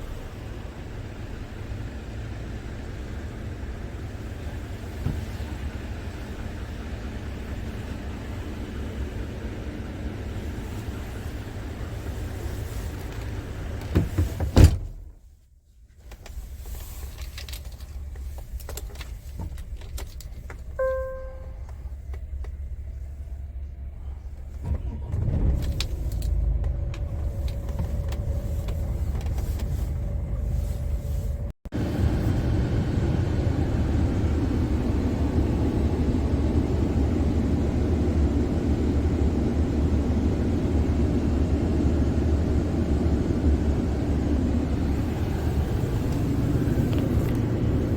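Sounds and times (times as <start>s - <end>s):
dashboard beep: 20.8s - 21.6s.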